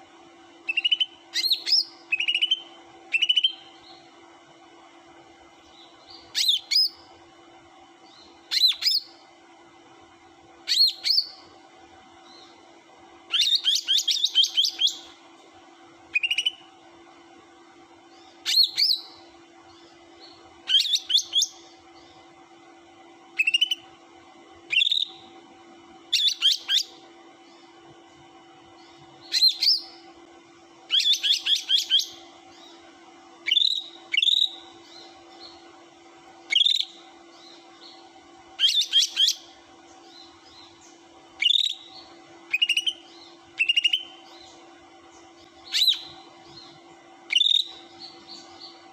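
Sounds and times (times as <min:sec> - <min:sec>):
steady low hum: 0:00.0 - 0:48.9
bird calling in sharp high notes: 0:41.4 - 0:44.3.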